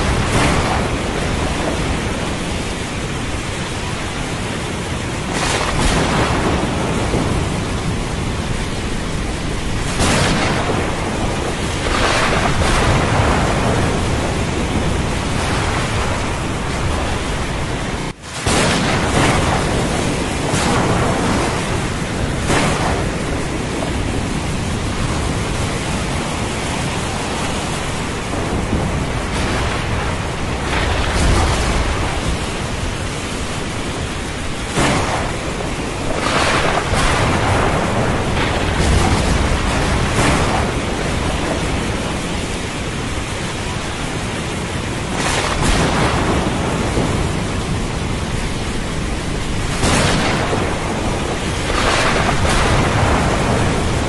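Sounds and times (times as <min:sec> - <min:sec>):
heavy rain: 0:00.0 - 0:54.0
thunder cracks: 0:00.0 - 0:54.0
thunder rumbling: 0:00.0 - 0:54.0.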